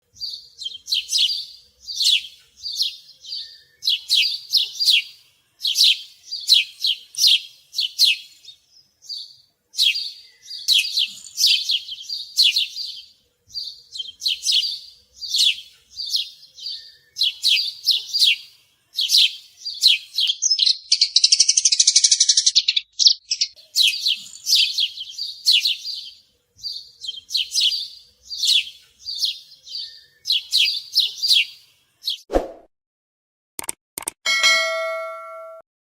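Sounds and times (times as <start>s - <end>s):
bird chirping high notes: 34.3s - 35.6s.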